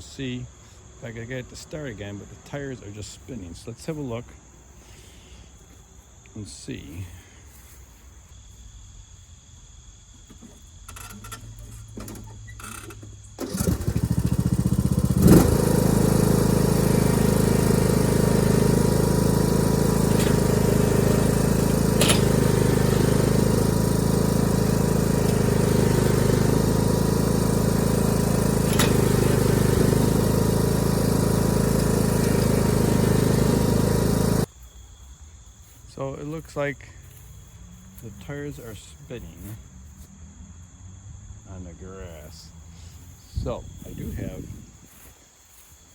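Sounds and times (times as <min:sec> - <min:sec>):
lawn tractor engine under load: 0:10.2 - 0:34.5, 0:37.9 - 0:39.7
tires spinning on grass: 0:13.4 - 0:34.5.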